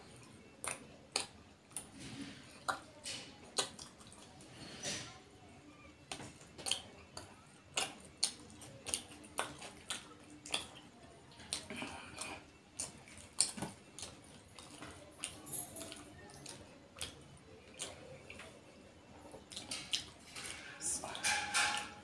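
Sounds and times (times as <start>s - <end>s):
man chewing food: 0.0s - 22.0s.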